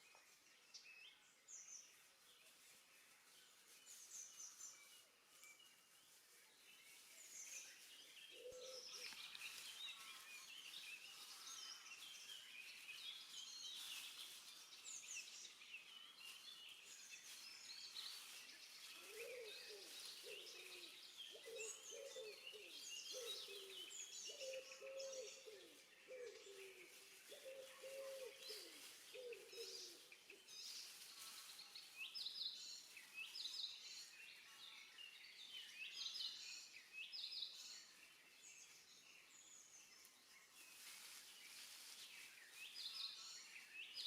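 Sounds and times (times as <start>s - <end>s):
songbirds chirping: 0.0s - 44.0s
bird cooing: 8.3s - 9.4s, 18.9s - 30.1s.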